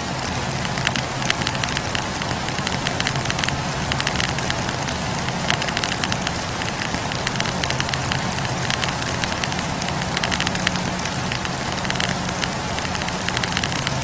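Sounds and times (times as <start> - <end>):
firewood crackling and popping: 0.0 - 14.0.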